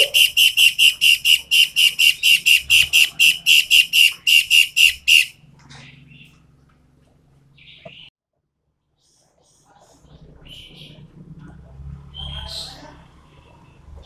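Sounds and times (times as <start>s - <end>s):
songbird singing sharp high notes: 0.0s - 5.4s.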